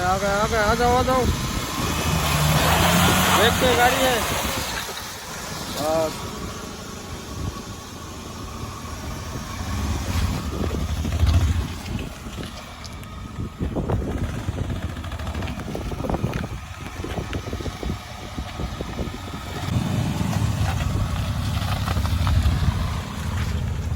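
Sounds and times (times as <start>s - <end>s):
small car engine rumbling: 0.0s - 23.9s.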